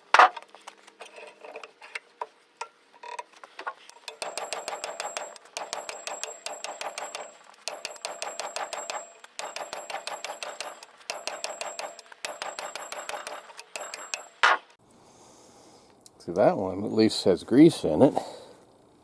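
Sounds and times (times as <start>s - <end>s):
ratchet wrench clicking: 3.9s - 14.8s.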